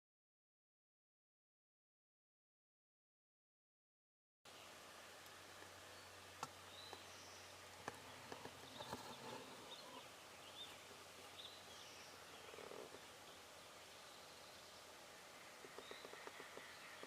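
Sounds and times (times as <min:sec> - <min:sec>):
songbird chirps: 0:04.5 - 0:17.0.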